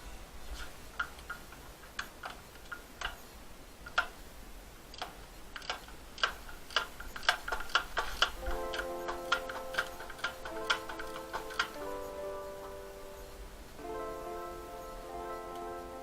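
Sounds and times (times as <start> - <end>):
metallic clicks and clinks: 4.9 - 12.2.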